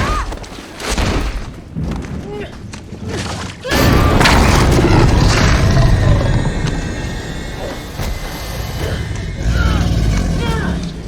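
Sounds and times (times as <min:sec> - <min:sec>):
film score music: 0:01.7 - 0:11.0
rumbling crash: 0:03.7 - 0:11.0
loud boom: 0:03.8 - 0:08.8.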